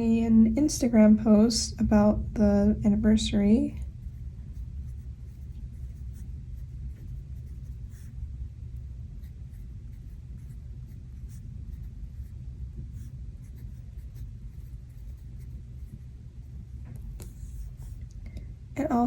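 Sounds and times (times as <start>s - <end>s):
pen writing on paper: 12.9s - 16.0s, 17.2s - 18.0s.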